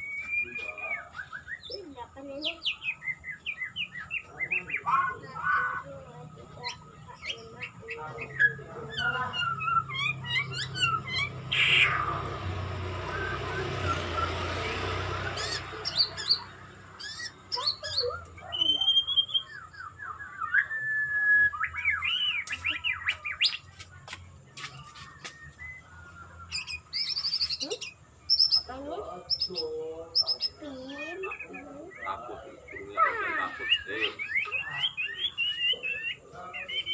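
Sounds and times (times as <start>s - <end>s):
songbird singing whistles and trills: 0.0s - 5.9s, 6.6s - 36.9s.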